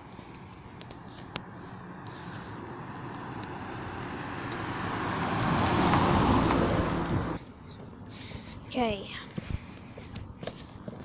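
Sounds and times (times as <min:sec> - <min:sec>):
passing car road noise: 0:00.0 - 0:07.6.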